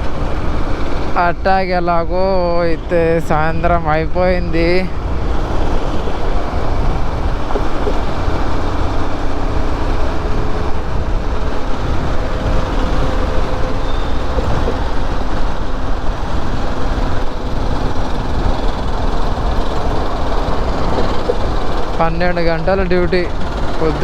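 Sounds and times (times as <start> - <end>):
faint engine hum: 0.0 - 24.0
motorbike road noise: 0.0 - 24.0
wind rumble on microphone: 0.0 - 24.0.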